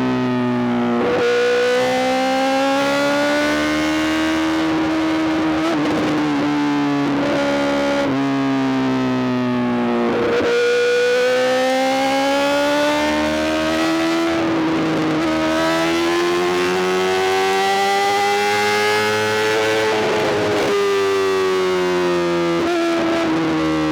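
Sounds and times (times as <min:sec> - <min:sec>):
motorcycle engine accelerating: 0:10.0 - 0:23.9.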